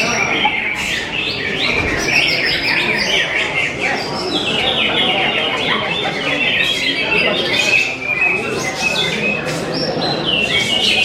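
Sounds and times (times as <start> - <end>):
birds chirping and warbling: 0.0 - 11.0
murmur of crowd chatter: 0.0 - 11.0.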